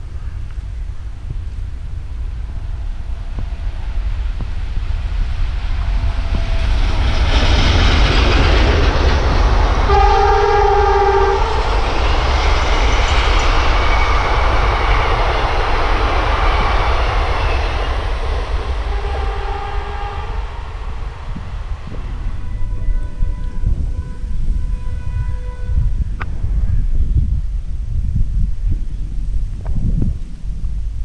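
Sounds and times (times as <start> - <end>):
train rumbling past: 0.0 - 31.0
locomotive horn: 9.8 - 11.9, 18.7 - 20.5, 22.3 - 26.0.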